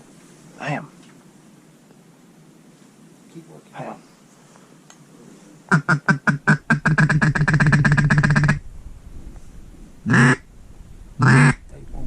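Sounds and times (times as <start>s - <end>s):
duck call quacks: 5.7s - 8.6s, 10.1s - 10.4s, 11.2s - 11.6s.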